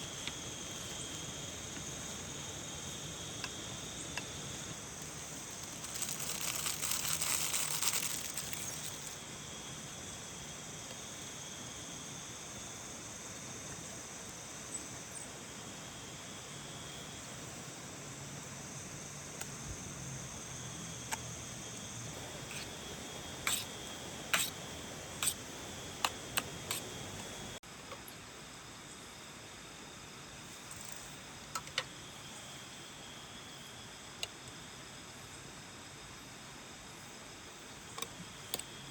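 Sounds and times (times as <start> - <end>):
insects trilling: 0.0 - 38.9
rain hiss: 0.0 - 38.9
rustling: 5.5 - 9.2.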